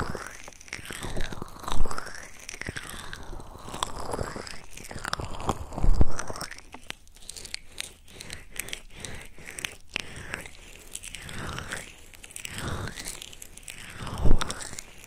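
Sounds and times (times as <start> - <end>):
rubbing and crackling on microphone: 0.0 - 15.0.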